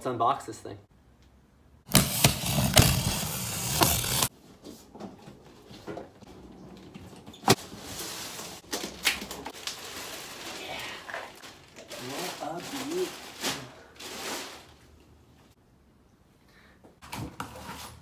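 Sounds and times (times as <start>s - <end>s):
cardboard tearing and rustling: 1.9s - 4.3s.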